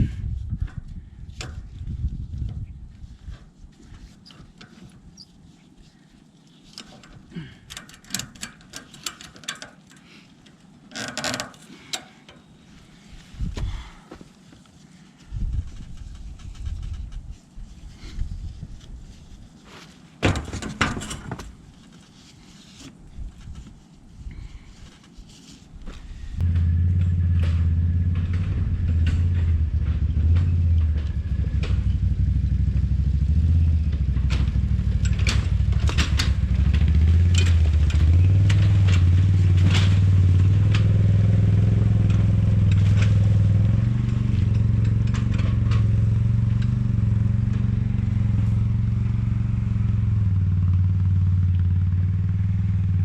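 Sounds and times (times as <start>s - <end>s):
handling noises: 0.6s - 32.3s
atv engine running: 26.4s - 53.0s.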